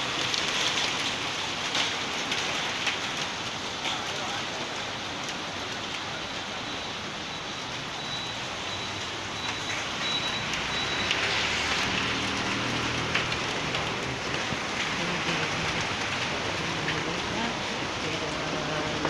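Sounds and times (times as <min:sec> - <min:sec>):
heavy rain pouring: 0:00.0 - 0:19.0
vehicle engine passing: 0:10.5 - 0:19.0.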